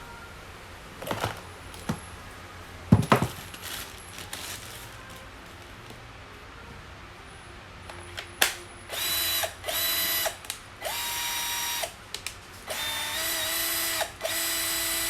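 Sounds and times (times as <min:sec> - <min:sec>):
knocks and clatter of tools: 0:02.9 - 0:03.7.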